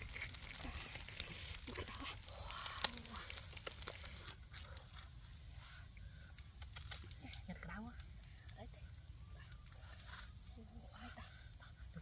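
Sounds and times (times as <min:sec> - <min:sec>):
rustling and crackling: 0:00.0 - 0:05.2.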